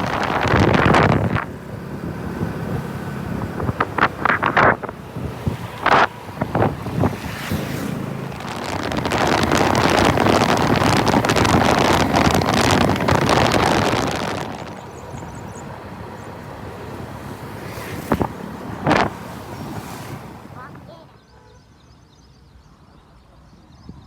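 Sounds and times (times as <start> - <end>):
wind rushing over microphone: 0.0 - 20.9
motorcycle engine running: 5.8 - 15.6.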